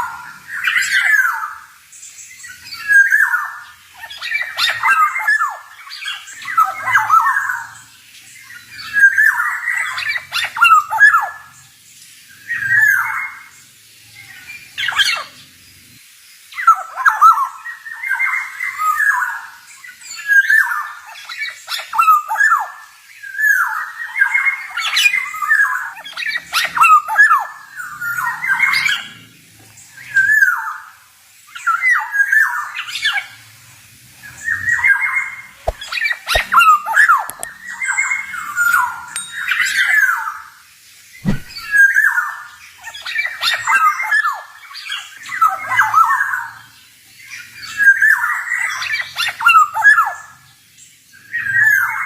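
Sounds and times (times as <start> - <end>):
bird calling with harsh fluty notes: 34.4 - 40.6, 41.2 - 46.5.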